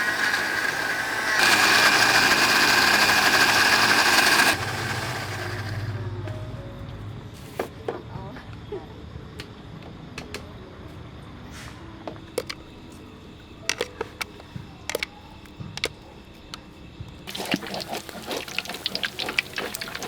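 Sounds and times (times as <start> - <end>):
water pouring and splashing: 17.3 - 20.0.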